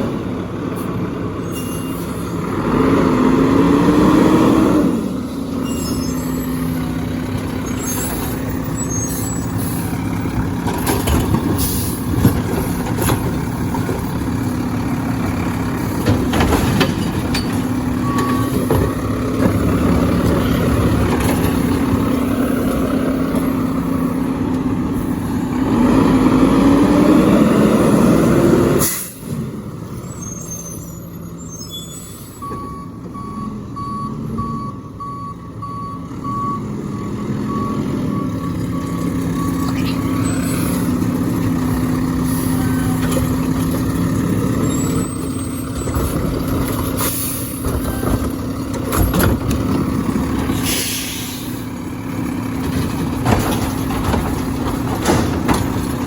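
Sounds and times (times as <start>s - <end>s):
garbage truck diesel engine: 0.0s - 56.0s
reversing beeper: 5.5s - 7.0s, 18.0s - 19.2s, 30.1s - 40.9s
air brake hiss: 28.8s - 29.3s, 50.6s - 51.6s.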